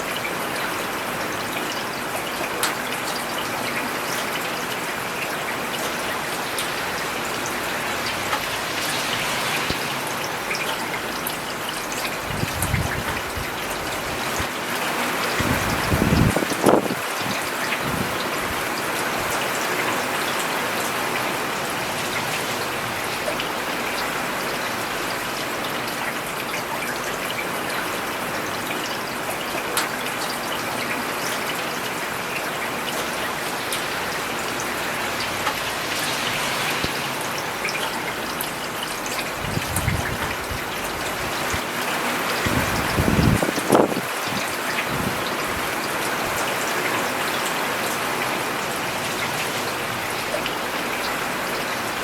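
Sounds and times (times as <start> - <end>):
rain falling on a road: 0.0 - 52.0
low rushing swells: 7.5 - 11.2, 34.8 - 38.7.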